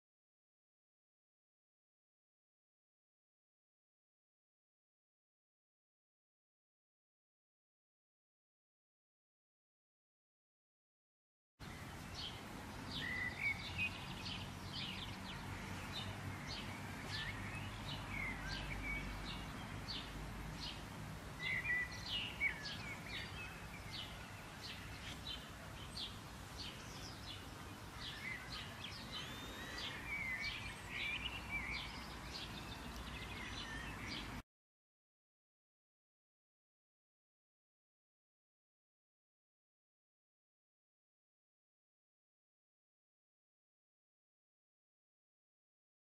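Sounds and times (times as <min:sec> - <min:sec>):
birds chirping and singing: 0:11.7 - 0:20.8, 0:21.4 - 0:34.4.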